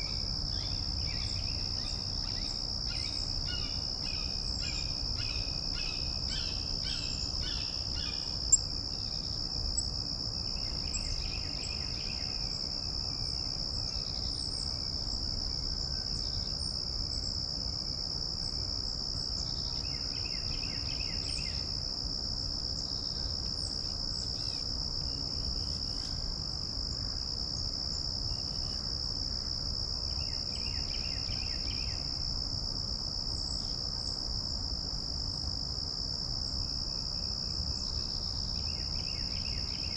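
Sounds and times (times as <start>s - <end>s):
songbird singing: 0.0s - 9.4s, 10.4s - 14.8s
insects droning: 0.0s - 39.9s.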